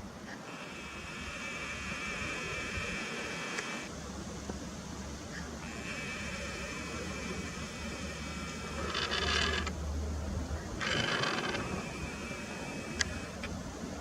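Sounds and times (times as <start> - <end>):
faint high hum: 0.0 - 14.0
camera lens motor whirring: 0.5 - 3.9, 5.6 - 9.8, 10.8 - 13.6.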